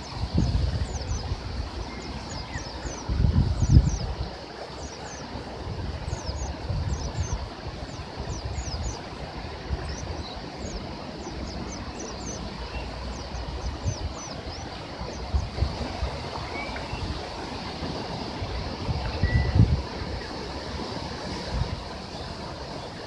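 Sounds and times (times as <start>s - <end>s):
small birds chirping: 0.0s - 17.4s
river water rushing: 0.0s - 23.0s
wind rumbling on microphone: 0.0s - 23.0s.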